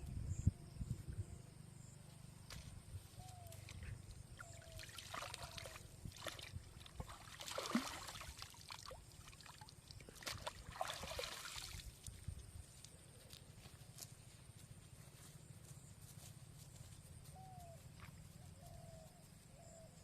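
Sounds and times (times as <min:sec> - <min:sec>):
water splashing and trickling: 0:04.4 - 0:12.3.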